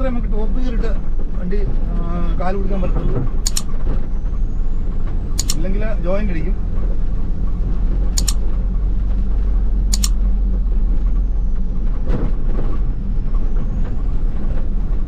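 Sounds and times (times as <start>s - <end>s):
car engine and road noise: 0.0s - 15.0s
short sharp clicks: 3.4s - 3.7s, 5.4s - 5.6s, 8.2s - 8.4s, 9.9s - 10.2s.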